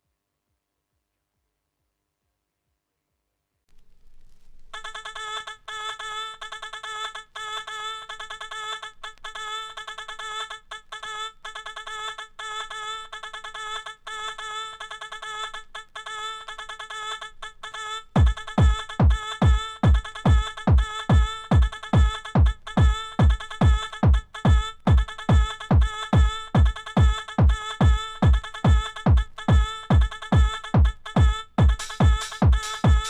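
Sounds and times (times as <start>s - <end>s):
kick drum: 18.2s - 33.0s.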